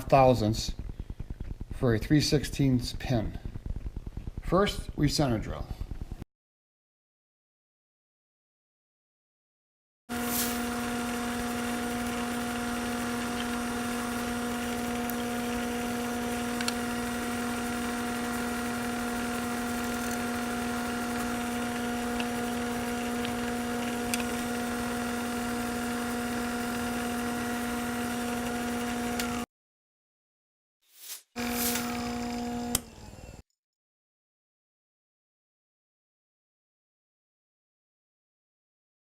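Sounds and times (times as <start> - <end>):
milling machine motor hum: 10.1 - 29.4, 31.4 - 33.4.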